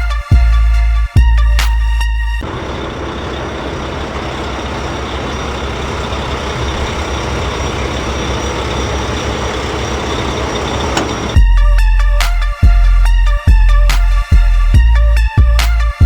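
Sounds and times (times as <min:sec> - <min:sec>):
engine running with hiss and hum: 0:02.4 - 0:14.9.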